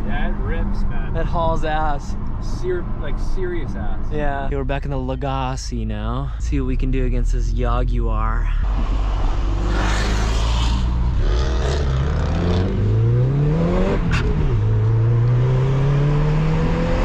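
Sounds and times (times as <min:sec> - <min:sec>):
turbocharged car engine accelerating: 0:06.6 - 0:17.0.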